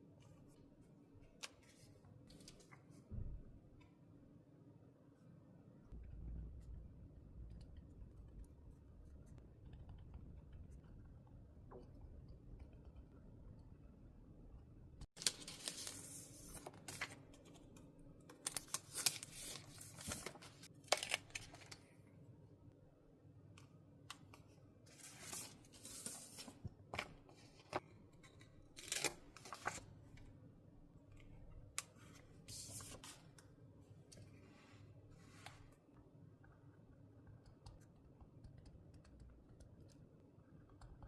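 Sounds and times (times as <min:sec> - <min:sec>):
paper rustling: 0:18.4 - 0:21.8, 0:28.8 - 0:29.9.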